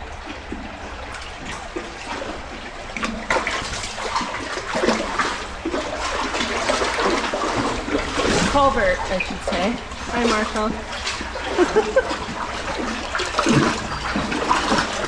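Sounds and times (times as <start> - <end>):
creek water running: 0.0 - 15.0
dogs splashing in water: 0.0 - 15.0.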